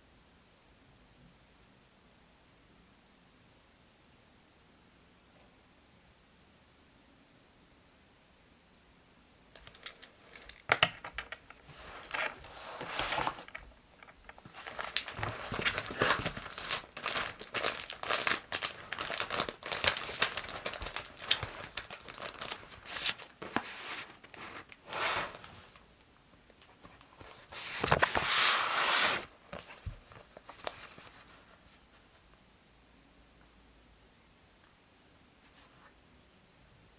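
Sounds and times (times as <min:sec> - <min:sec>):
paper crinkling and rustling: 0:09.6 - 0:25.8, 0:26.6 - 0:32.2.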